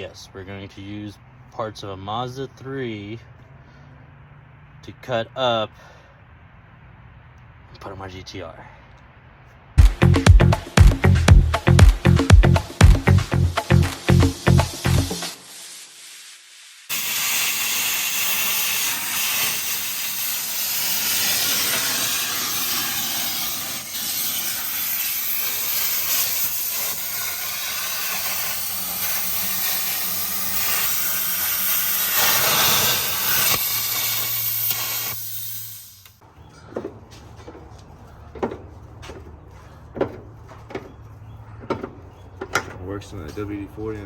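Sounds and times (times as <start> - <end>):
pressurised spray hissing: 13.0 - 36.2.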